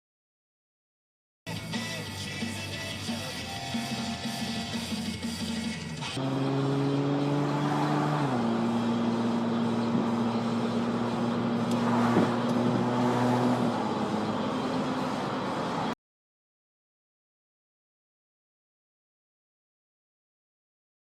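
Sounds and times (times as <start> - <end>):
car engine and exhaust drone: 4.2 - 16.0
tyre and road noise: 6.0 - 16.0.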